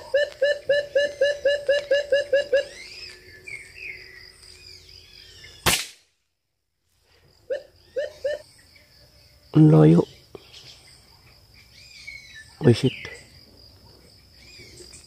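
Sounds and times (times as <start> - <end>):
bird hooting notes: 0.0 - 5.6, 7.4 - 8.5
bird gliding chirps: 0.0 - 5.7, 7.3 - 8.9
air rifle firing: 5.6 - 6.0.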